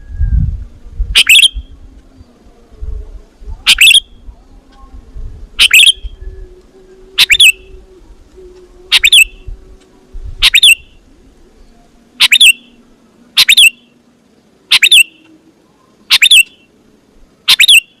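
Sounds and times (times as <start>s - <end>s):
bird sharp sweeping call: 1.2s - 1.7s, 3.7s - 4.1s, 5.6s - 6.2s, 7.2s - 7.7s, 8.9s - 9.5s, 10.4s - 11.0s, 12.2s - 12.8s, 13.4s - 14.0s, 14.7s - 15.4s, 16.1s - 16.8s, 17.5s - 18.0s.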